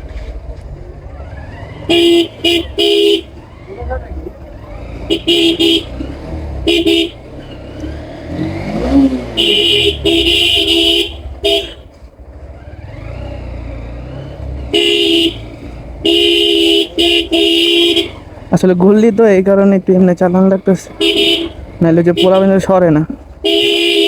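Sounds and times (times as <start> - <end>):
motorcycle engine rumble: 0.0 - 24.0
road traffic: 0.0 - 24.0
vehicle horn blasts: 1.8 - 3.6, 5.0 - 7.4, 8.8 - 12.0, 14.6 - 18.4, 20.6 - 22.7, 23.4 - 24.0.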